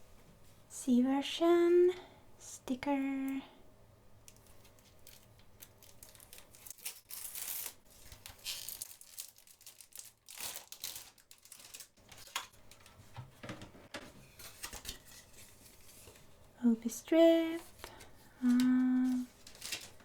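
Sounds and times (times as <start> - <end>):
plastic shrink wrap tearing: 4.3 - 13.0, 17.6 - 20.0.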